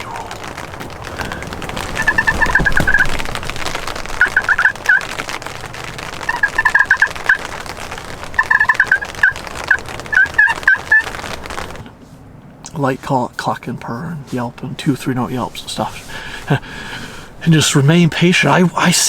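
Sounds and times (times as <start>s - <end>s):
rain pattering: 0.0s - 19.0s
turkey gobbling: 1.1s - 5.3s, 6.1s - 11.8s.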